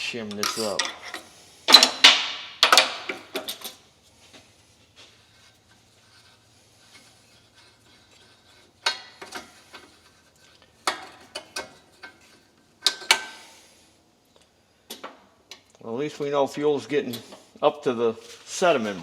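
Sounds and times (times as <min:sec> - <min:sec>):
metal tools clanking: 0:00.0 - 0:03.8.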